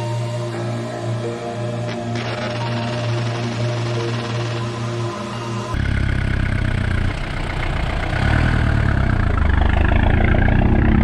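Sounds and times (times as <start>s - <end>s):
music: 0.0s - 9.4s
diesel engine running: 5.8s - 11.0s.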